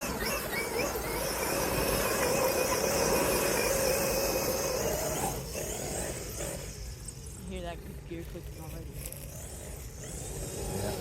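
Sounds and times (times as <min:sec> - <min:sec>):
rc car motor whine: 0:00.0 - 0:11.0.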